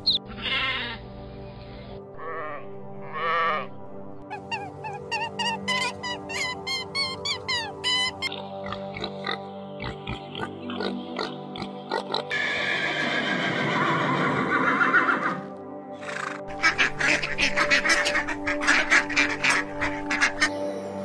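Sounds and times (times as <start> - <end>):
children's background music: 0.0 - 12.7, 15.0 - 21.0
horse whinnying: 12.3 - 15.5.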